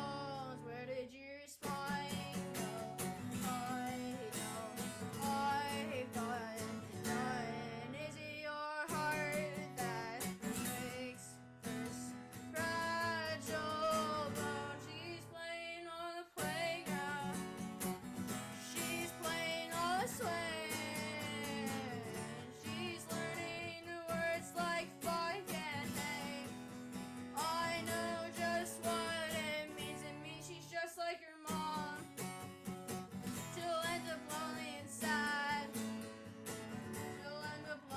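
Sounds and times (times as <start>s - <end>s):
person singing: 0.0s - 26.6s, 27.3s - 32.4s, 33.3s - 36.0s, 36.7s - 37.9s
acoustic guitar strumming: 1.6s - 15.3s, 16.4s - 30.5s, 31.5s - 37.9s.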